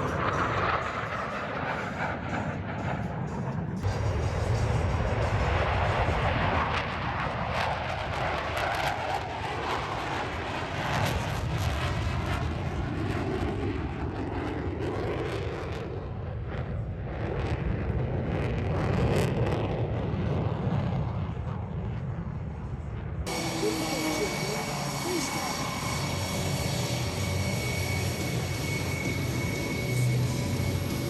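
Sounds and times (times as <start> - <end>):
jet engine rushing: 0.0 - 31.0.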